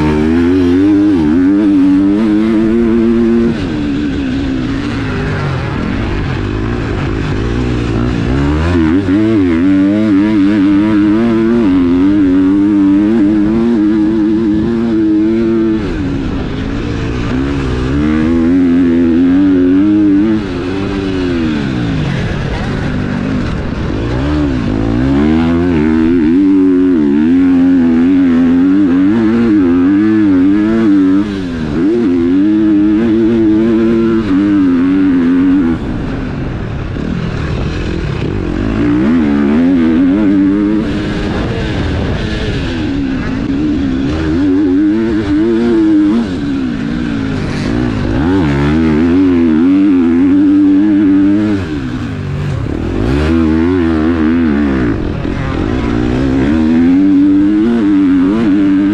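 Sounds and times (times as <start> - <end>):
motocross bike engine revving: 0.0 - 58.9.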